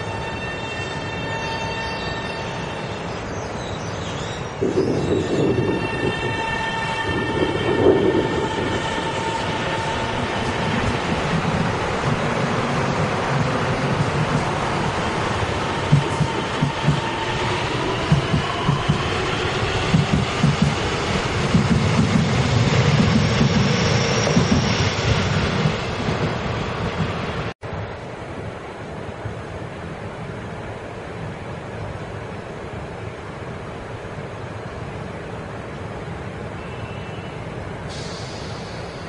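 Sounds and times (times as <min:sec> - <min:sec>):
train rumbling: 0:00.0 - 0:39.0
train whine: 0:00.0 - 0:39.0.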